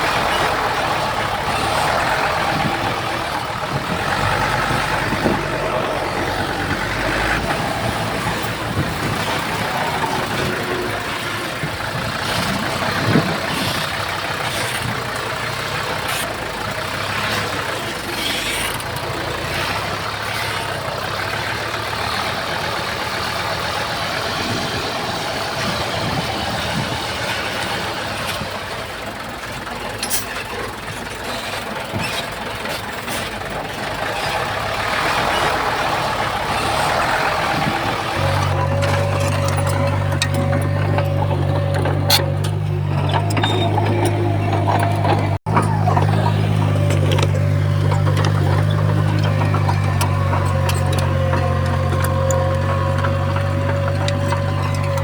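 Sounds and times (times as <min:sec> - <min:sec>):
heavy diesel machinery running: 0:00.0 - 0:55.0
metallic clanks: 0:30.0 - 0:55.0.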